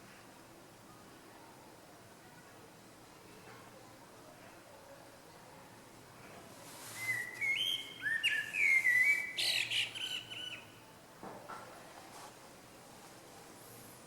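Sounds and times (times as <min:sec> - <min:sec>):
small songbird singing: 0:07.0 - 0:10.8.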